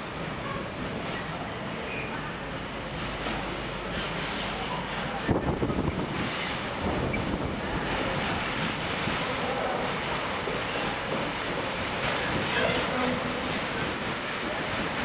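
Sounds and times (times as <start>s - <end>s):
freight train wheels rumbling: 0.0s - 15.0s
wind buffeting microphone: 5.2s - 9.2s.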